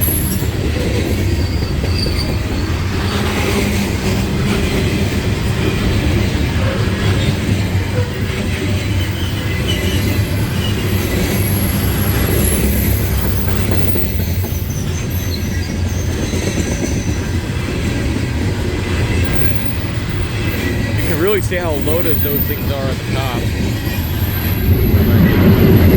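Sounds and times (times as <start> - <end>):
faint wheel squeal: 0.0 - 3.5, 7.9 - 17.4
freight train wheels rumbling: 0.0 - 25.9.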